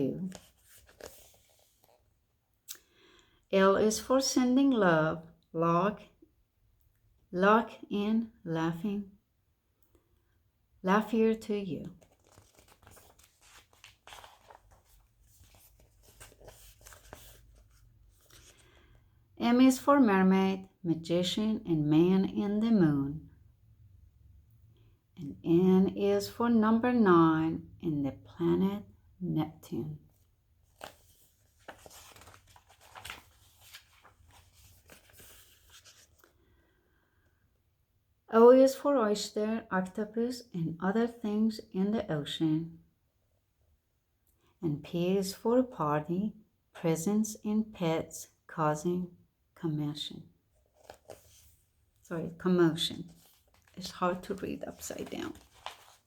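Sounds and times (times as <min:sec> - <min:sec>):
paper page turning: 0:00.2 - 0:02.1, 0:11.8 - 0:18.8, 0:30.7 - 0:36.3, 0:50.6 - 0:56.0.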